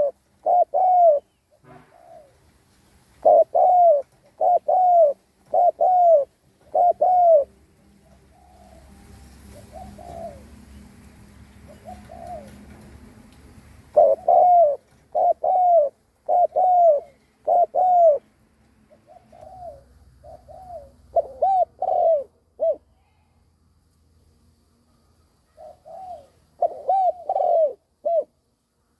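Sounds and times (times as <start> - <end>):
dove cooing: 0.0 - 2.4, 3.2 - 10.8, 11.5 - 12.8, 13.8 - 18.3, 18.9 - 23.0, 25.5 - 28.4.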